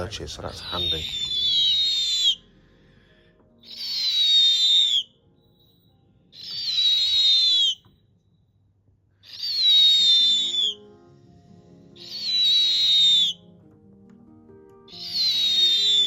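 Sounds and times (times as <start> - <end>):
owl hissing whistled calls: 0.5 - 2.5, 3.6 - 5.2, 6.3 - 7.8, 9.2 - 10.9, 11.7 - 13.5, 14.9 - 16.0.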